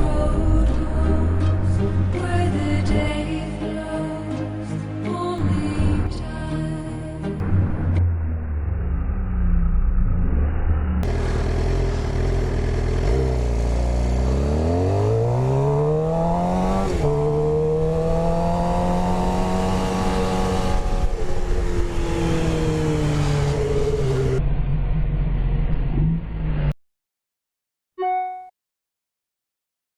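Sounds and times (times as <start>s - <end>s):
motorcycle engine revving: 7.4s - 26.7s.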